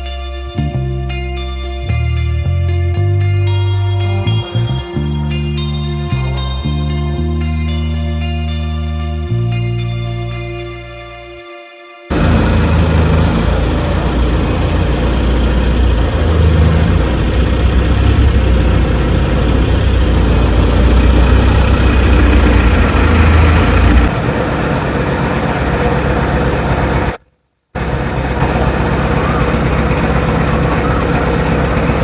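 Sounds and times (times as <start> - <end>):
boat engine droning: 12.1 - 27.2, 27.8 - 32.0
rushing noise: 12.1 - 27.2.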